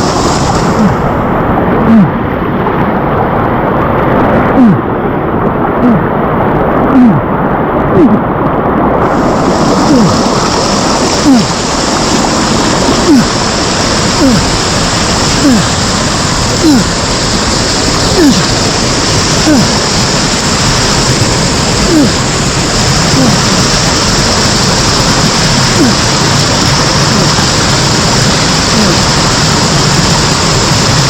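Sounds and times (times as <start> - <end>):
fast water rushing: 0.0 - 31.0.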